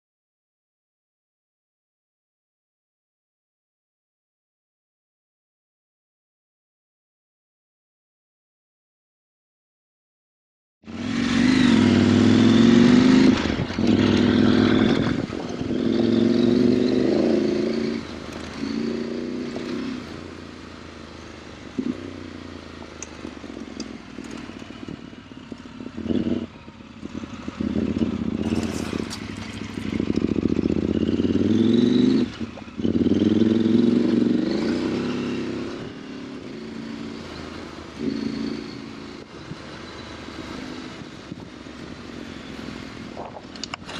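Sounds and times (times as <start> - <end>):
motorcycle engine accelerating: 10.9 - 43.9.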